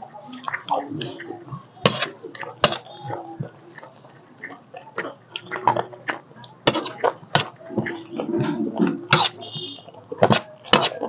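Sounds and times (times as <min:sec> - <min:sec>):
chewing crunchy snack: 0:00.2 - 0:11.0
metal spoon scraping a plate: 0:06.7 - 0:11.0.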